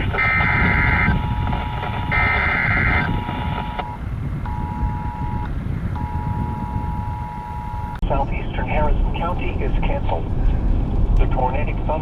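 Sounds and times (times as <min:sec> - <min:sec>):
warbling digital data burst: 0:00.0 - 0:03.9
high beep tone: 0:00.0 - 0:08.0
vehicle road rumble: 0:00.0 - 0:12.0.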